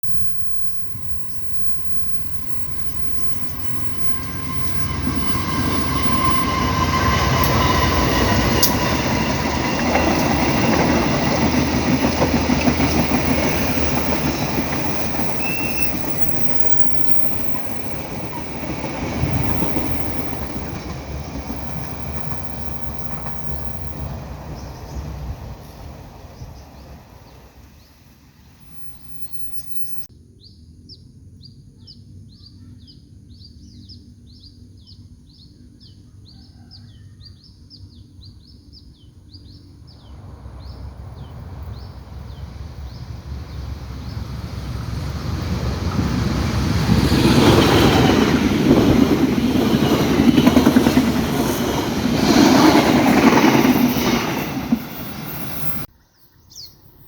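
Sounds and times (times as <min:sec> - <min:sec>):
train passing with clattering rumble: 0:00.0 - 0:30.1, 0:39.3 - 0:57.0
bird chirping high falling chirp: 0:14.4 - 0:18.0, 0:56.2 - 0:57.0.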